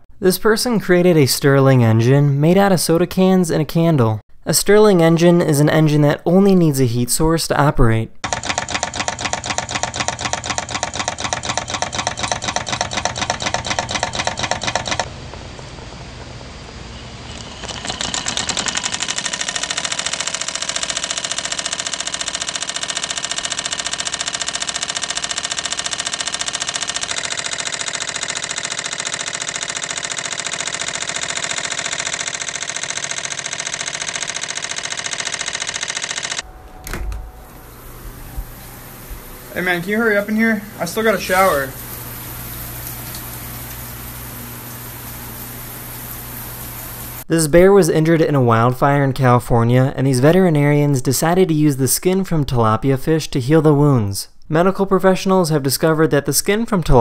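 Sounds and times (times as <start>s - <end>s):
small engine rapid clicking: 8.2s - 15.1s, 17.3s - 36.4s.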